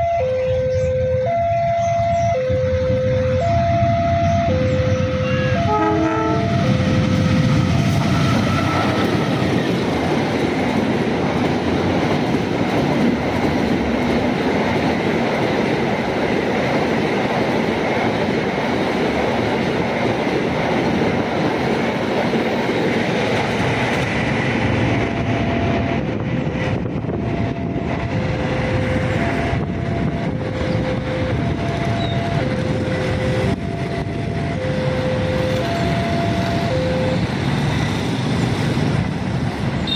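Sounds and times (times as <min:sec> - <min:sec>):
crossing warning signal tones: 0:00.0 - 0:13.0, 0:25.0 - 0:38.5
train wheels rumbling on rails: 0:00.0 - 0:39.9.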